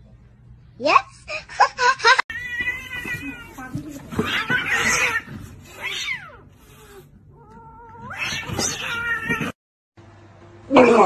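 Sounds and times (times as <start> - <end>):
cat meowing: 2.3 - 9.6
cats hissing and crying: 2.3 - 9.6.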